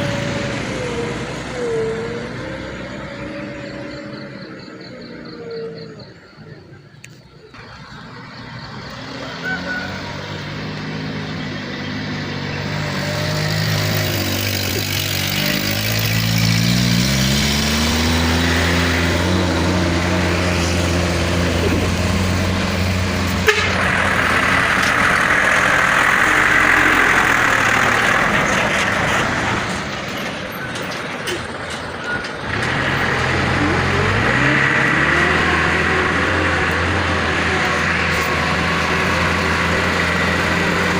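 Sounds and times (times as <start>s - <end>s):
truck diesel engines labouring: 0.0s - 40.9s.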